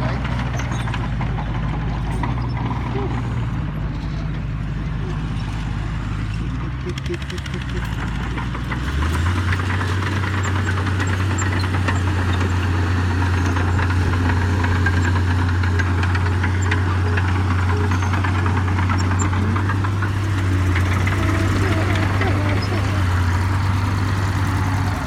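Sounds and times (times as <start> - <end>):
engine knocking clatter: 0.0 - 25.0
heavy diesel engine droning: 0.0 - 25.0.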